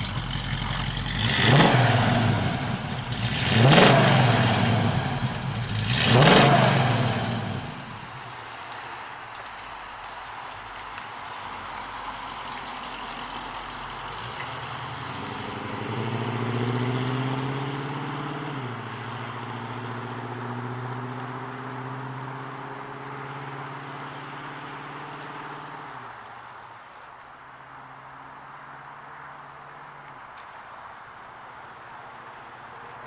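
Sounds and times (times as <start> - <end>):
car engine accelerating: 0.0 - 9.5, 10.9 - 26.2.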